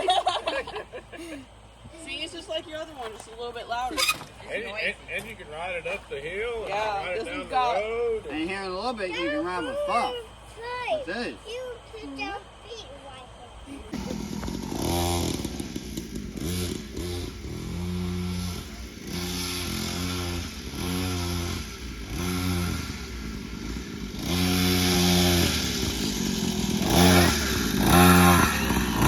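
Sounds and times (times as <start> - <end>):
dirt bike engine revving: 13.9 - 29.0.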